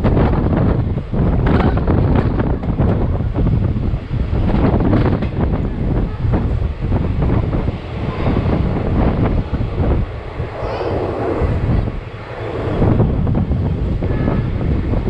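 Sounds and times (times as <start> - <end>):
train wheels clattering on rails: 0.0 - 7.5
wind buffeting microphone: 0.0 - 15.0.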